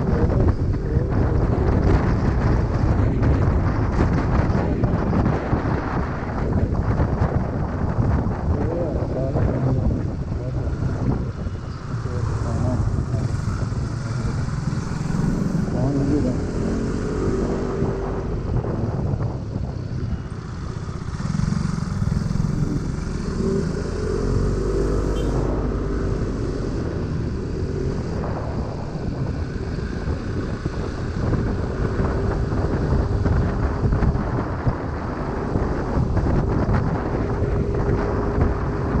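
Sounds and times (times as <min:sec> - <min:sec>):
wind on microphone: 0:00.0 - 0:39.0
scooter engine running: 0:11.9 - 0:16.0, 0:20.1 - 0:33.5.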